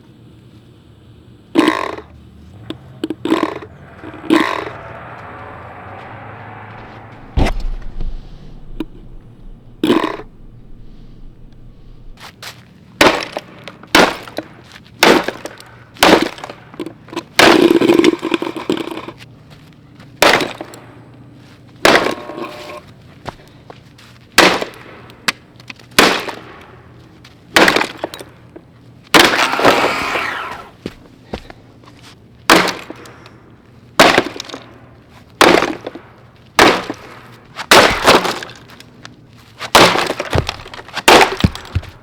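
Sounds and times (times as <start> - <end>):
sharp blows cracking plastic: 35.4 - 38.8, 39.6 - 42.0
crashing and breaking: 37.6 - 42.0.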